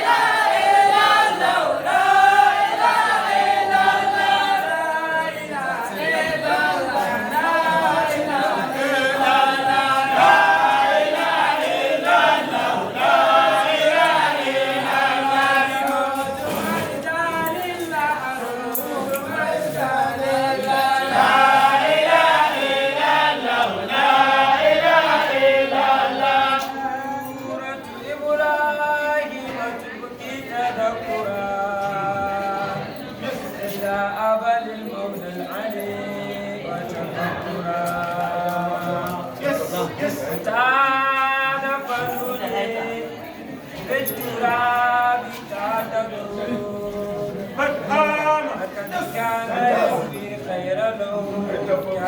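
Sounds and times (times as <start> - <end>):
group singing unaccompanied chant: 0.0 - 52.0.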